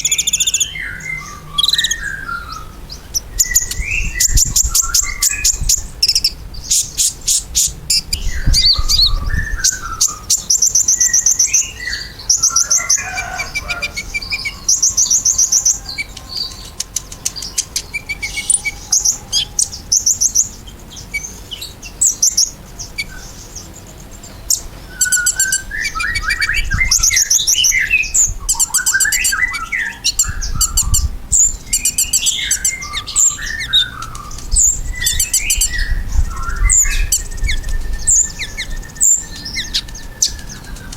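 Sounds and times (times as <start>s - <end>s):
bird twittering trills: 0.0s - 40.9s.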